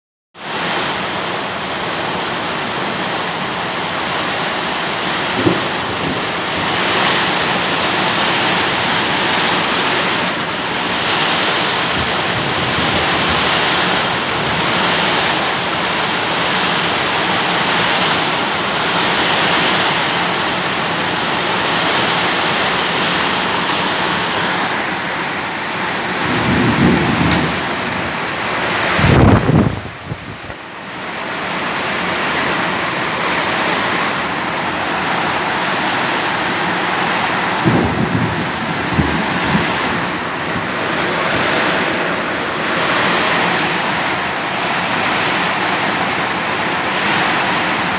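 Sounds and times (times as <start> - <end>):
heavy rain: 0.4 - 47.9
strong gusting wind: 4.0 - 47.9
low rumbles: 25.6 - 30.6.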